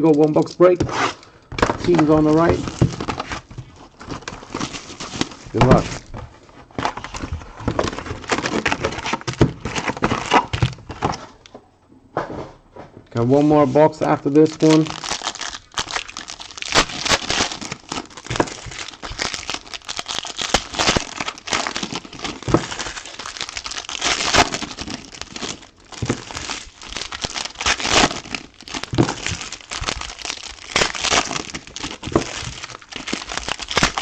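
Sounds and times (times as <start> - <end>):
card pack wrappers crinkling: 0.0 - 11.2, 13.2 - 34.0.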